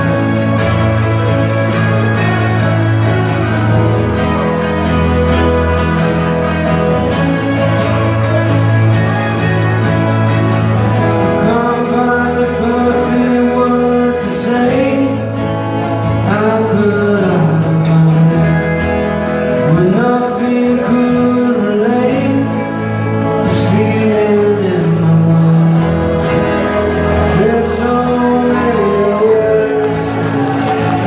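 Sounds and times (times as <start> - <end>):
acoustic guitars: 0.0 - 31.0
man singing: 11.0 - 31.0.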